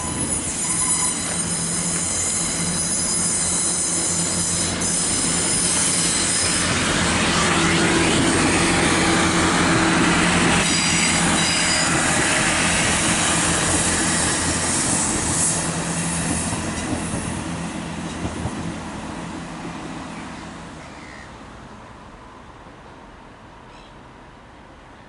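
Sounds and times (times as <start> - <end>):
train wheels squealing: 0.0 - 8.6, 10.6 - 18.3
train running past: 0.0 - 25.0.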